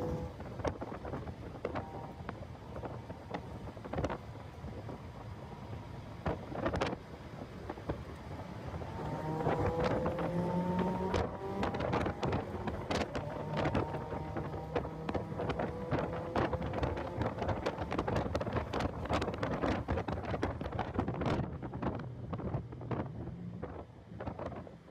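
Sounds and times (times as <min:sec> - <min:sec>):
car engine revving: 0:00.0 - 0:02.2, 0:08.2 - 0:19.7
wind buffeting microphone: 0:00.0 - 0:24.9.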